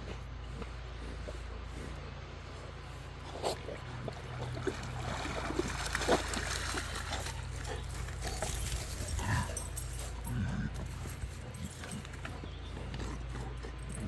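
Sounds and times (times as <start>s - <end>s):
low hum: 0.0s - 14.0s
water splashing: 3.6s - 8.6s
dog sounds: 6.8s - 14.0s.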